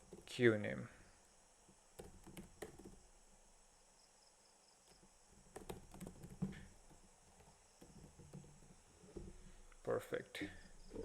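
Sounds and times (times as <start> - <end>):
computer keyboard typing: 2.0 - 3.0, 5.4 - 6.8.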